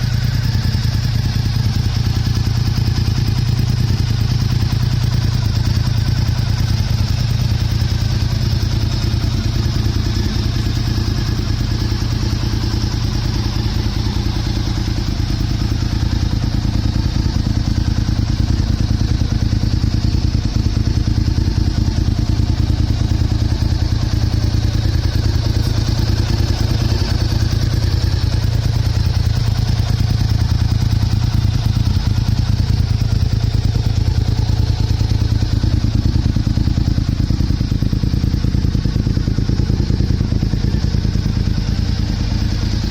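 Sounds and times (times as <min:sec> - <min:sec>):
motorcycle engine idling: 0:00.0 - 0:42.9.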